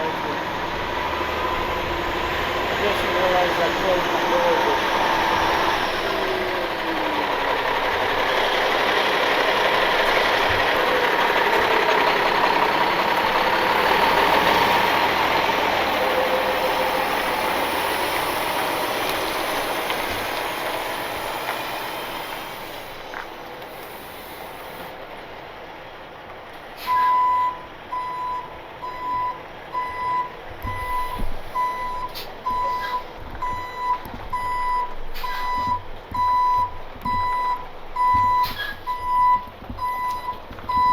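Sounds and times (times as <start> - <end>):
truck running: 0.0 - 40.9
reversing alarm beeping: 26.9 - 40.9.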